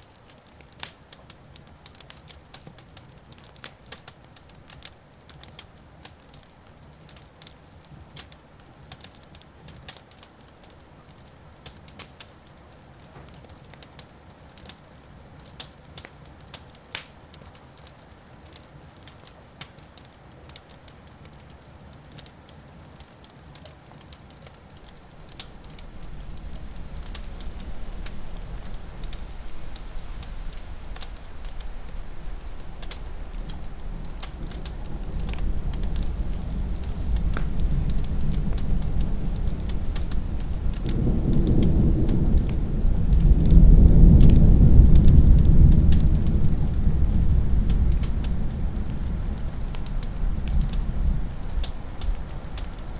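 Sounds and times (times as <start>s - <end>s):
wood fire crackling: 0.0s - 52.9s
rolling thunder: 24.8s - 52.9s.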